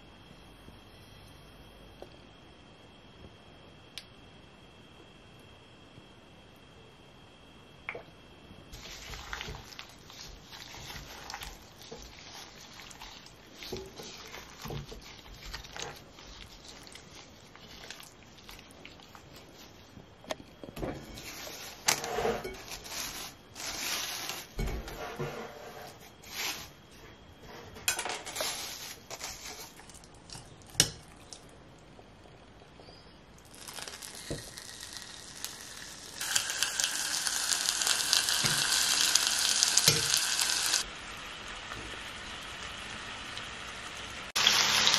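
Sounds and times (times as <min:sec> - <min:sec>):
cling film crinkling and tearing: 0:33.4 - 0:40.8
chicken sizzling in hot oil: 0:33.4 - 0:44.9.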